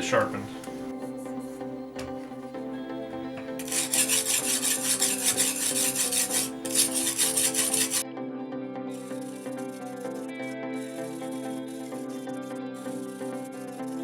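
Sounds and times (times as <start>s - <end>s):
background music: 0.0s - 14.0s
tape peeling off knife blade: 3.6s - 8.0s.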